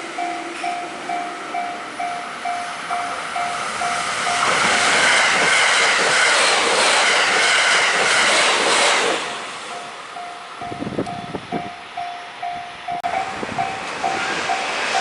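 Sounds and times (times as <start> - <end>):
level-crossing warning bell: 0.0 - 5.2, 9.7 - 15.0
train wheels rushing on rail: 0.0 - 15.0.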